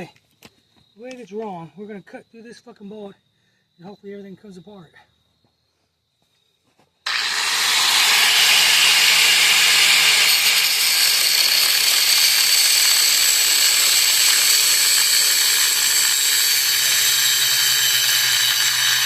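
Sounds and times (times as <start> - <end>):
power tool cutting metal: 7.1 - 19.0.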